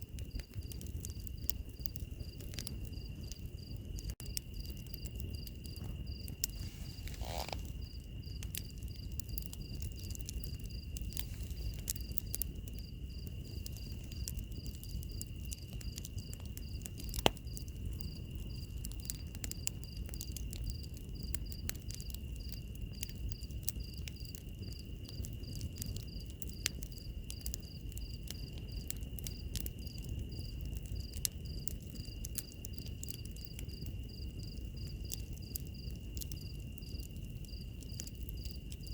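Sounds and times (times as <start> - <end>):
wood fire crackling and popping: 0.0 - 38.9
insect pulsing high chirp: 2.9 - 10.1.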